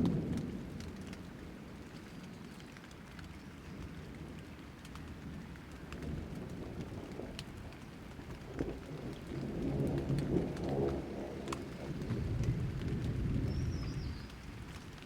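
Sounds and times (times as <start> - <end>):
rolling thunder: 0.0 - 1.6, 6.0 - 15.0
rain falling: 0.0 - 15.0.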